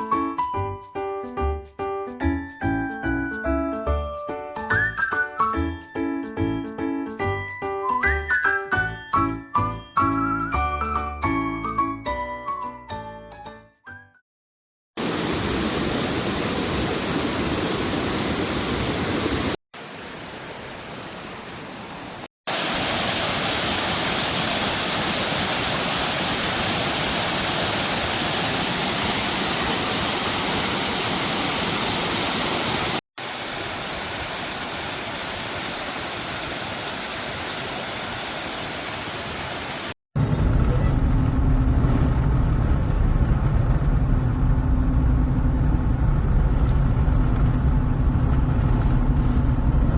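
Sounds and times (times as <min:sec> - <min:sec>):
waterfall pouring: 0:22.5 - 0:40.0.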